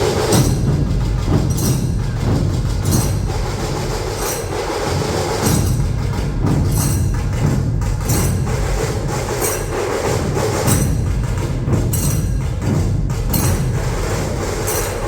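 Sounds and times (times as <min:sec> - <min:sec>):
barrel drums pounding: 0:00.0 - 0:15.0
bright cymbal crashes: 0:00.0 - 0:15.0
rattling drums: 0:00.0 - 0:15.0.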